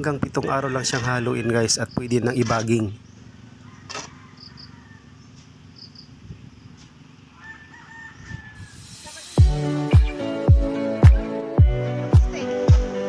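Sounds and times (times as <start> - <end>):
rooster crowing: 0.3 - 1.9, 3.5 - 5.3, 7.3 - 9.0.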